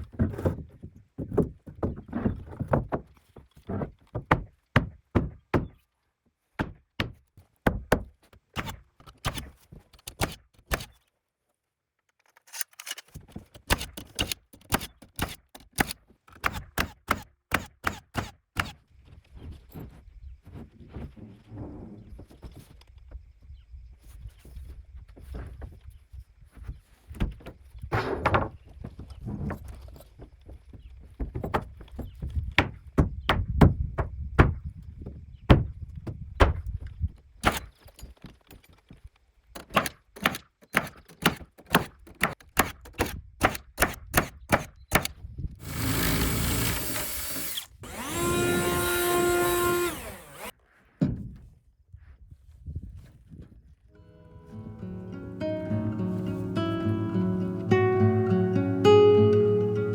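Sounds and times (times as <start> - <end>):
nails driven into wood: 12.5 - 18.8, 37.4 - 37.8, 39.6 - 50.5
power saw running: 45.6 - 50.5.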